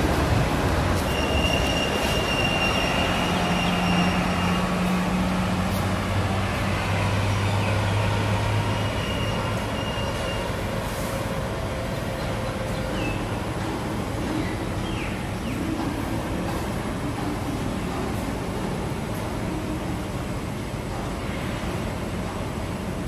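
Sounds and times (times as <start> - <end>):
train running rumble: 0.0 - 23.0
wheel squeal: 1.0 - 4.9, 8.7 - 11.2.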